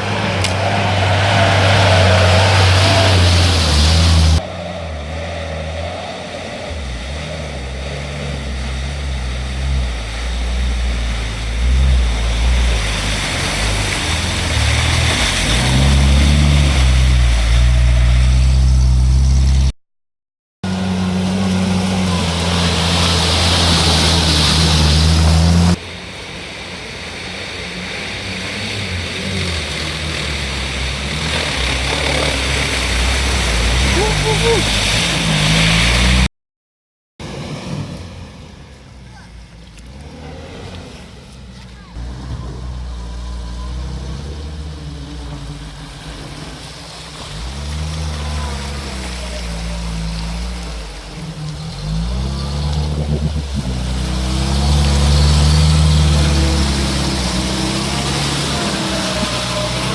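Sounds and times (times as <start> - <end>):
off-road vehicle engine revving: 0.0 - 19.8, 20.6 - 36.3, 37.2 - 59.9.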